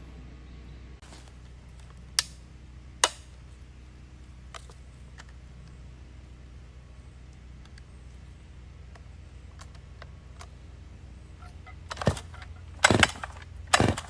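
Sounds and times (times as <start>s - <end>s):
low steady hum: 0.0s - 14.0s
sharp clicks: 11.4s - 14.0s.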